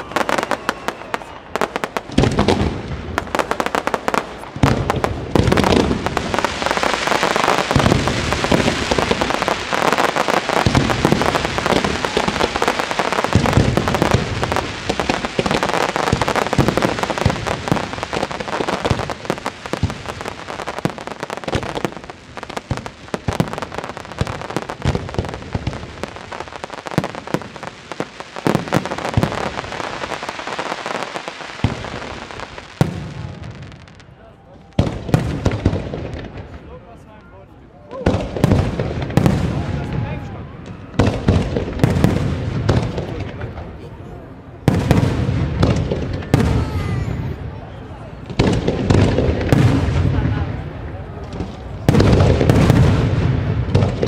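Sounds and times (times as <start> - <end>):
fireworks booming: 0.0 - 36.9, 37.9 - 54.0
fireworks crackling: 0.0 - 54.0.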